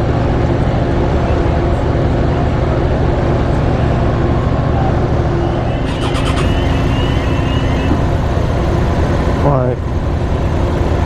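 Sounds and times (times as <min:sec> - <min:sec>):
engine idling: 0:00.0 - 0:11.0
faint rising whine: 0:03.0 - 0:09.4.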